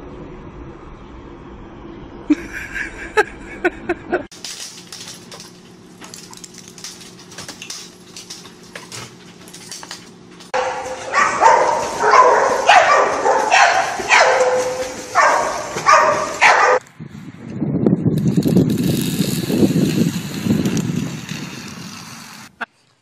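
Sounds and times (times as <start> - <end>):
dog barking: 10.6 - 16.8.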